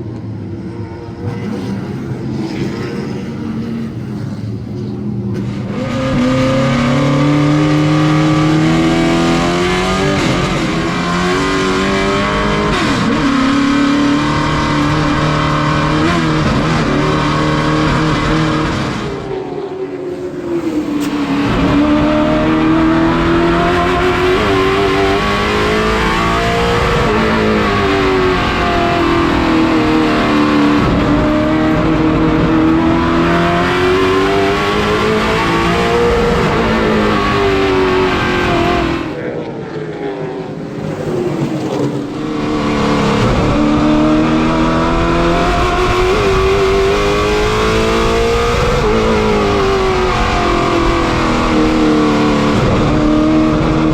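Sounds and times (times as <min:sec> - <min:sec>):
stock car engines racing: 0:00.0 - 0:53.9.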